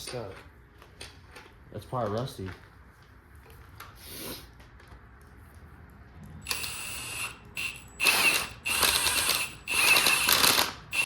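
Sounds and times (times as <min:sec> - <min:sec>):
power ratchet running: 0:06.4 - 0:11.0.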